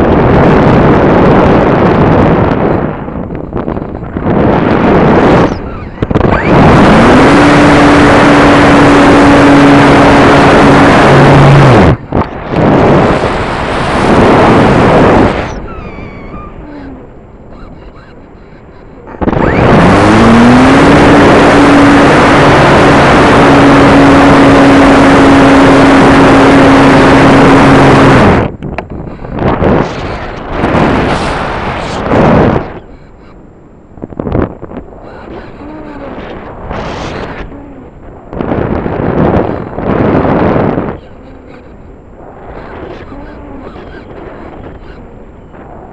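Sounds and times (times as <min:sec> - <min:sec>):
electric motor and propeller whine: 0:00.0 - 0:33.2.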